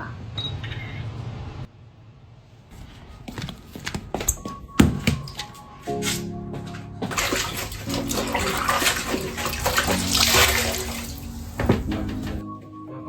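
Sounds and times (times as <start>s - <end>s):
background music: 4.4s - 13.0s
water running from a tap: 7.1s - 12.4s.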